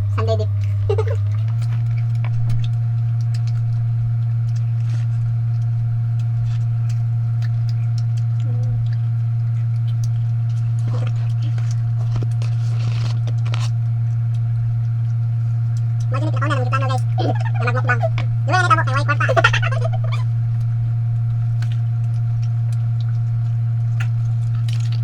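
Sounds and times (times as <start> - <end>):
loud steady low hum: 0.0 - 25.0.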